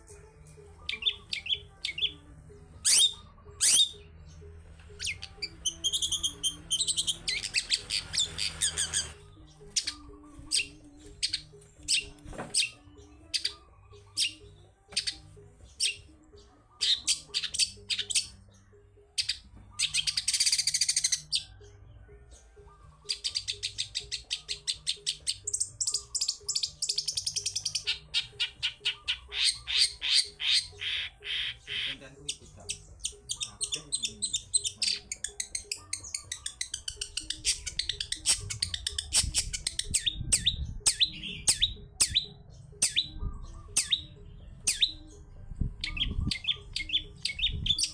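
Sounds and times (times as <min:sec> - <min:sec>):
bird chips and rattling trills: 0:05.0 - 0:16.1, 0:23.1 - 0:45.0.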